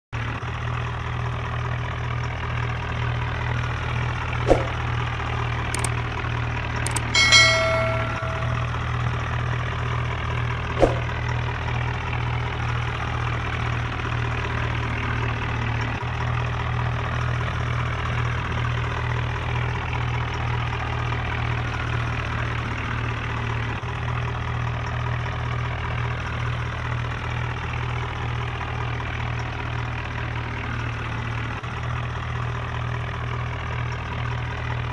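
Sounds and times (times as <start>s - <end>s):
sharp clicks: 5.8s - 6.0s, 6.9s - 8.7s
brief high-pitched tone: 6.9s - 8.8s.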